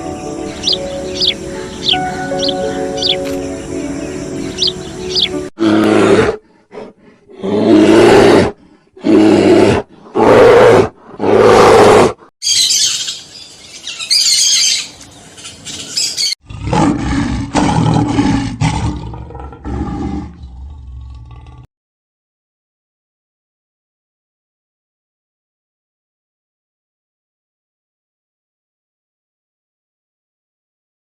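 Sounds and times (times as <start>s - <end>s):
high-pitched fluttering call: 0.0s - 5.5s, 12.4s - 16.4s
lion roaring: 5.6s - 12.2s, 16.4s - 21.7s.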